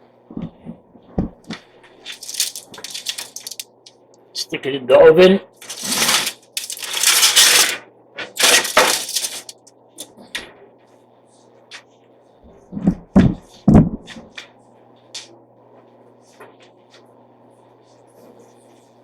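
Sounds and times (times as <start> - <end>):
metal tray scraping: 2.0 - 3.8, 5.6 - 9.6.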